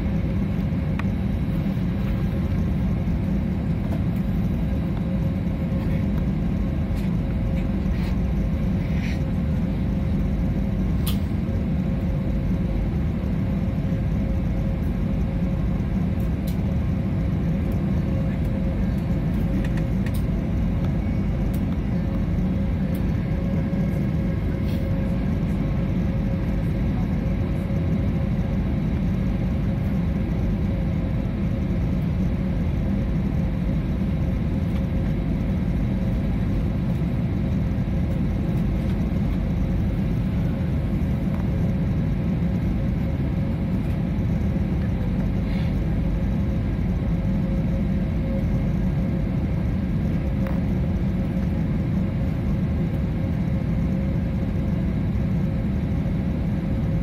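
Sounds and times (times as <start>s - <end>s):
airliner cabin engine drone: 0.0s - 57.0s
faint steady hum: 0.0s - 57.0s.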